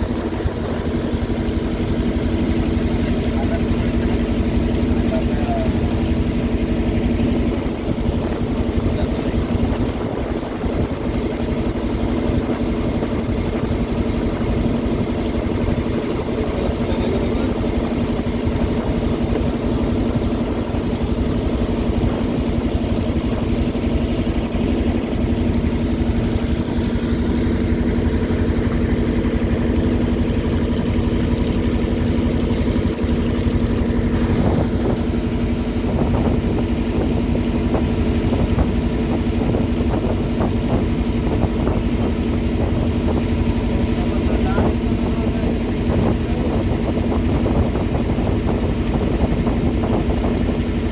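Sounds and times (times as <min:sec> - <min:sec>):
boat engine humming: 0:00.0 - 0:50.9.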